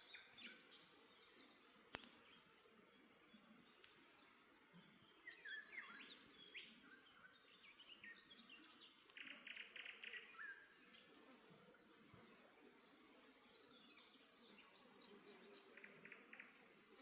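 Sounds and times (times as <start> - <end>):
songbirds chirping: 0.0 - 17.0
campfire crackles: 1.6 - 5.5, 11.0 - 13.2.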